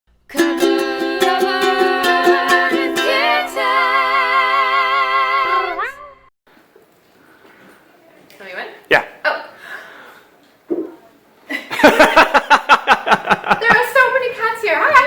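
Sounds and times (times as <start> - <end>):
ukulele strumming chords: 0.3 - 4.4.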